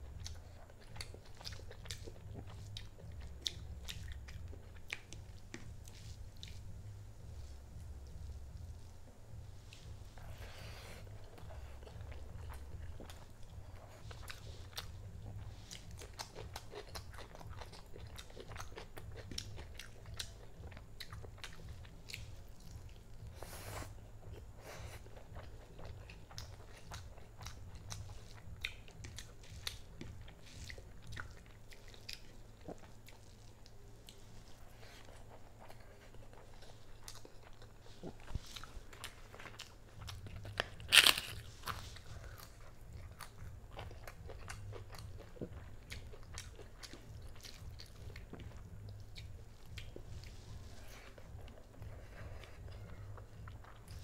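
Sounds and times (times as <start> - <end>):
person chewing food: 0.0 - 54.0
loud sharp crunch: 40.9 - 41.8.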